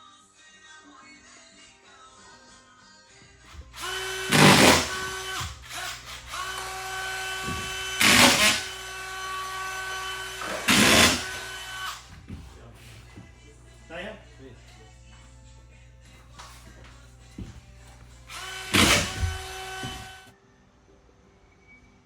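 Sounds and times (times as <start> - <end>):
power tool whining: 3.5 - 12.4, 17.2 - 20.3
power tool harsh bursts: 3.6 - 12.1, 18.3 - 20.3.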